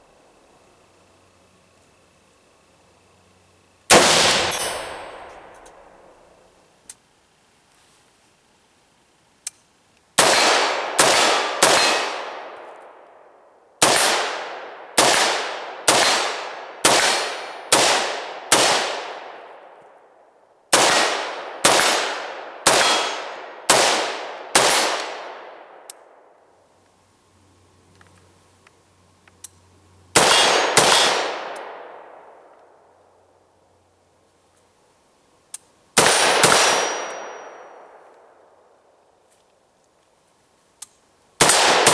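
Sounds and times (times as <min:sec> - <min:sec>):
rifle shots: 0:03.9 - 0:06.0, 0:10.2 - 0:12.6, 0:13.8 - 0:19.4, 0:20.7 - 0:25.8, 0:30.2 - 0:32.3, 0:36.0 - 0:38.0, 0:41.4 - 0:41.9.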